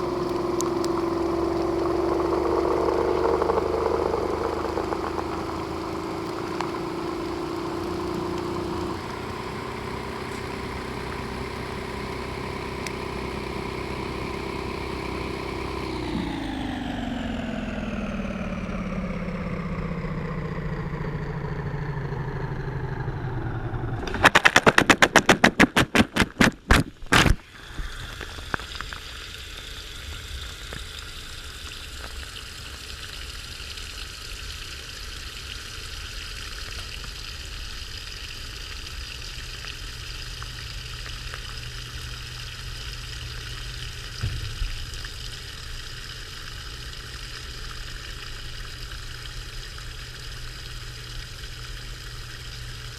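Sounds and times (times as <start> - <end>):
washing machine drum knocking: 0.0 - 11.4, 44.2 - 44.9
steady hiss: 0.0 - 15.6
faint hum: 0.0 - 16.3
washing machine motor whine: 0.0 - 24.2, 27.4 - 52.9.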